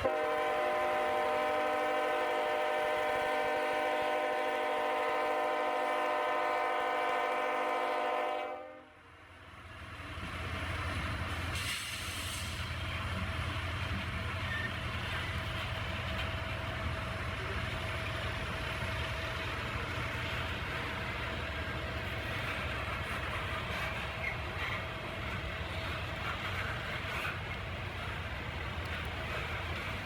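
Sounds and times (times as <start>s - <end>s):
locomotive horn chord: 0.0s - 9.0s
train rumble and wheel noise: 0.0s - 30.0s
brief hiss: 11.5s - 12.8s.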